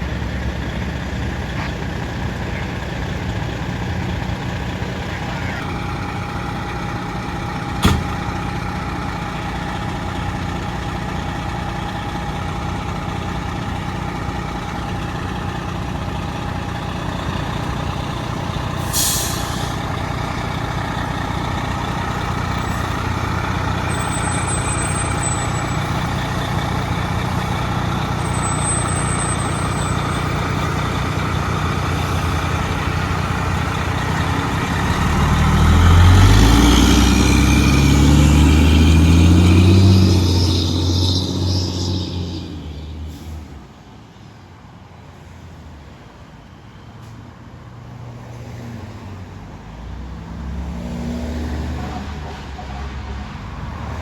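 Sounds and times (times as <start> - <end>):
diesel engine idling: 0.0 - 43.7
air brake hiss: 18.8 - 19.9, 43.0 - 43.6.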